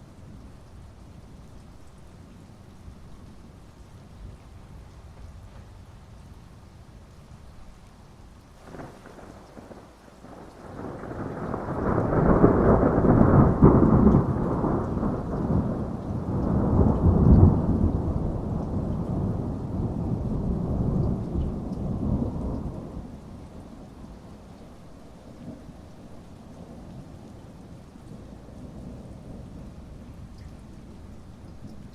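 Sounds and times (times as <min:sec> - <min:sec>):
heavy rain: 0:00.0 - 0:31.9
thunder crack and rumble: 0:08.6 - 0:24.3.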